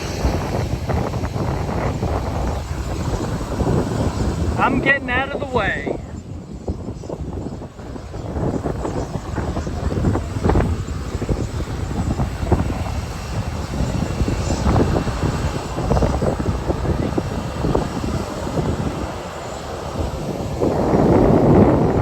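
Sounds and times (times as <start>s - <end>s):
jet blast buffeting microphone: 0.0s - 22.0s
jet engines running up: 0.0s - 22.0s.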